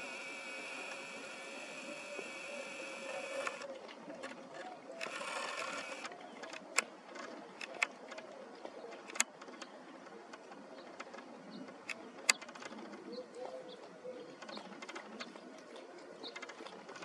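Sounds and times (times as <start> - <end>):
sharp clicks: 0.0 - 3.7, 5.0 - 6.9, 7.6 - 8.0, 9.0 - 9.5, 11.9 - 12.6.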